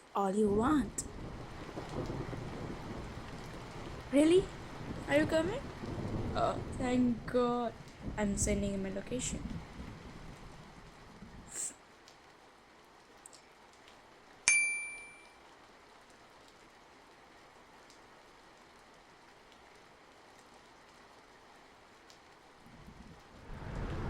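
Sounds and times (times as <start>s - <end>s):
light rain: 0.0s - 24.0s
bright ding: 14.5s - 15.4s.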